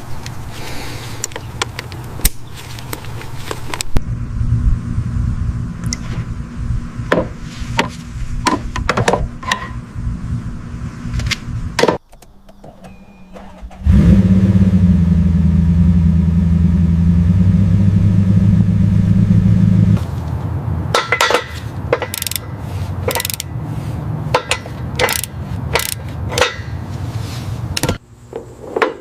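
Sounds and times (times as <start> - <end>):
car engine rumbling: 2.8 - 28.0
engine starting up loudly: 12.9 - 20.0.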